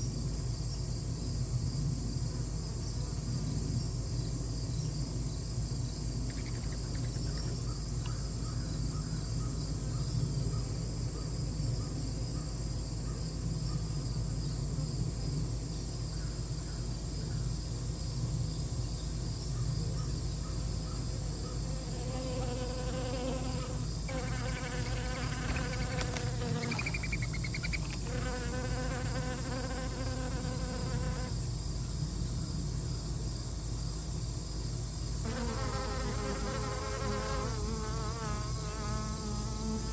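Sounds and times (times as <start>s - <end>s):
insects trilling: 2.1s - 39.9s
buzzing hum of wings: 21.1s - 31.4s, 35.2s - 39.9s.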